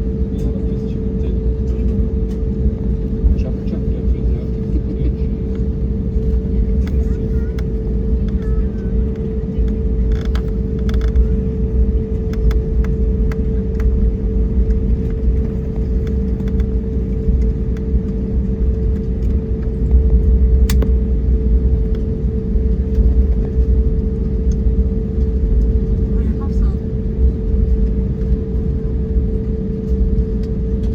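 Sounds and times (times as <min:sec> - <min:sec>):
aircraft cabin engine rumble: 0:00.0 - 0:30.9.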